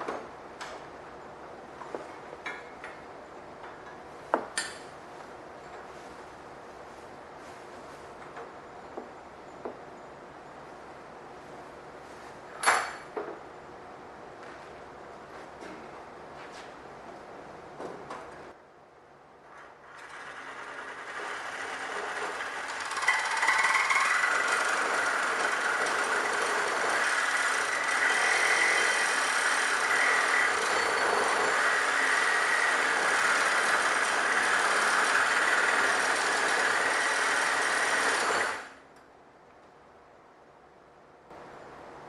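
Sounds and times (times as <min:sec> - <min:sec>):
reciprocating saw cutting steel: 0:19.9 - 0:38.8.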